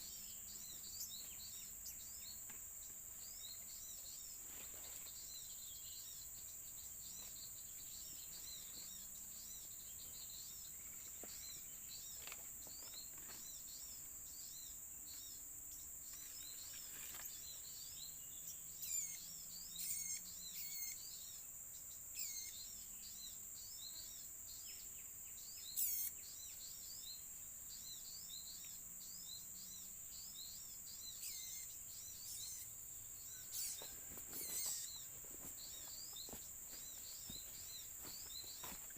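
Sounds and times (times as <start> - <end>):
small birds chirping: 0.0 - 38.9
high-pitched insect drone: 5.1 - 38.9
bird sweeping calls: 33.4 - 36.2.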